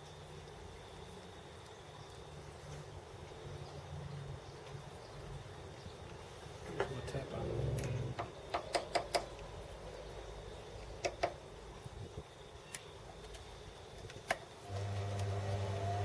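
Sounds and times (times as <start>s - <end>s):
lathe motor humming: 14.7s - 16.0s.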